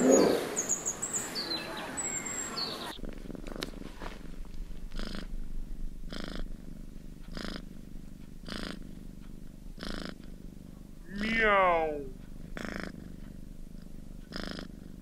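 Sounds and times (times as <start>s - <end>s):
cat purring: 2.1s - 15.0s.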